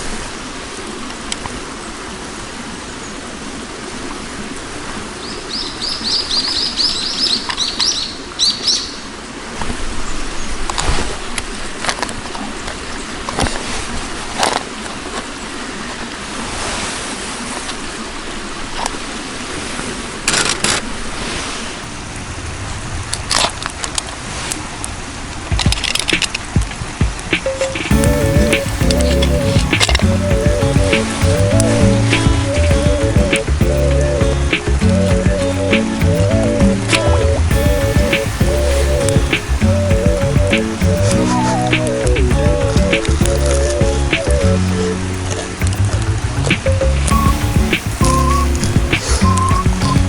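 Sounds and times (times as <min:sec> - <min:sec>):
rushing background noise: 0:24.6 - 0:50.0
small bird chirping: 0:47.1 - 0:50.0.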